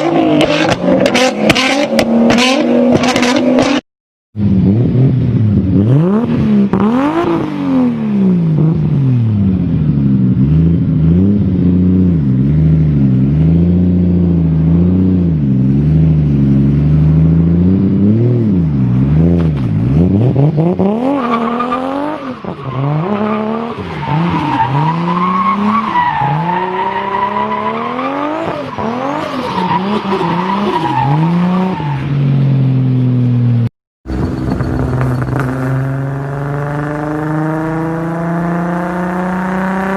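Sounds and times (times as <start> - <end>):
car engine revving: 0.0 - 3.8, 4.4 - 39.9
high whine: 34.1 - 37.3.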